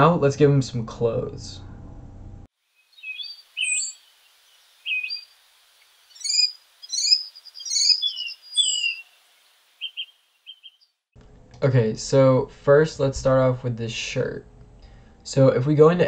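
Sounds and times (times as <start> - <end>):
birds chirping and whistling: 2.8 - 5.4, 6.1 - 10.9.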